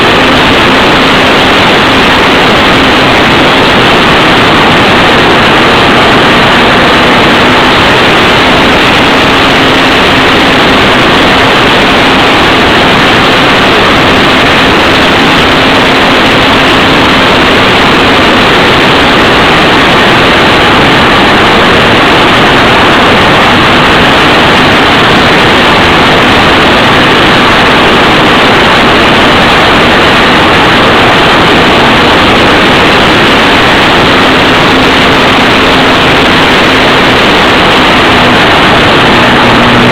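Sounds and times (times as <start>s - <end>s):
model plane propeller and wind rush: 0.0s - 39.9s
faint electric motor hum: 33.3s - 39.9s.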